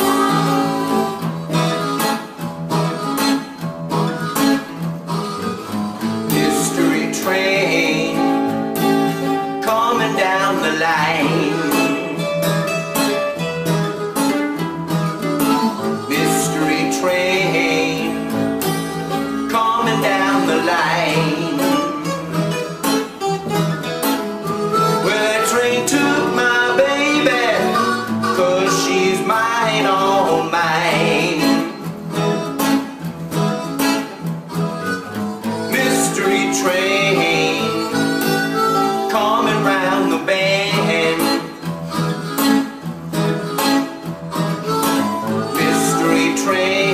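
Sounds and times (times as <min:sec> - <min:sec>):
acoustic guitar strumming: 0:00.0 - 0:46.9
bending blues lead line: 0:00.0 - 0:46.9.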